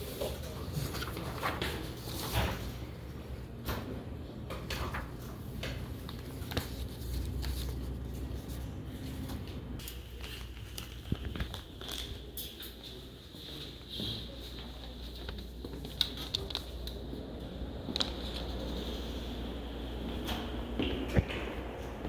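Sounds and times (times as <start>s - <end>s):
steady low hum: 1.8s - 22.0s
crinkling: 9.8s - 12.6s.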